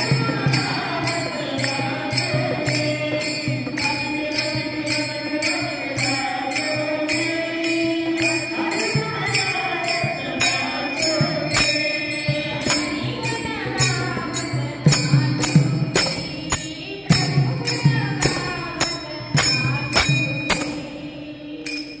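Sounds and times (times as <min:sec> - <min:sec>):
hand cymbals: 0:00.0 - 0:22.0
woman singing devotional song: 0:00.0 - 0:22.0
drum: 0:11.4 - 0:20.9.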